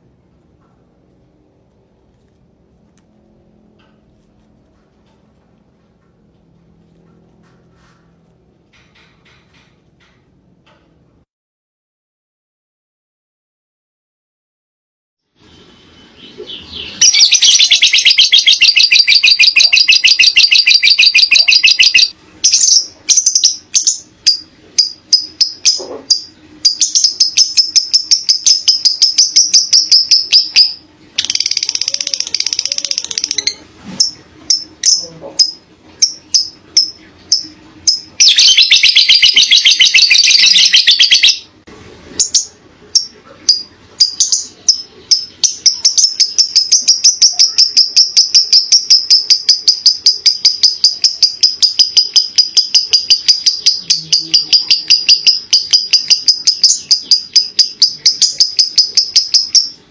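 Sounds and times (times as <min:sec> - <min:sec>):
sharp bird chirps: 0:15.8 - 0:31.9, 0:33.4 - 0:41.5, 0:42.2 - 0:59.8
lovebird trilling: 0:16.2 - 0:41.5, 0:42.2 - 0:59.8.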